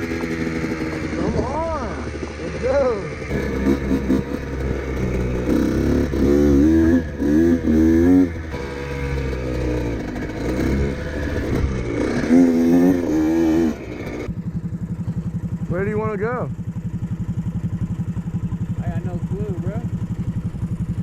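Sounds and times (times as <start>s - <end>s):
mini bike engine revving: 0.0s - 14.3s.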